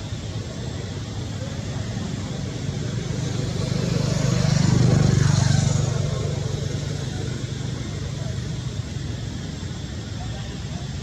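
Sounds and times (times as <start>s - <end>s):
vehicle engine passing by: 1.6s - 8.9s.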